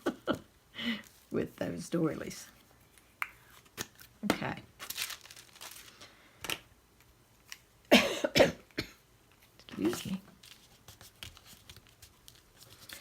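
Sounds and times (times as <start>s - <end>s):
paper crinkling and rustling: 3.6s - 6.6s, 9.6s - 13.0s
person coughing: 7.9s - 9.0s.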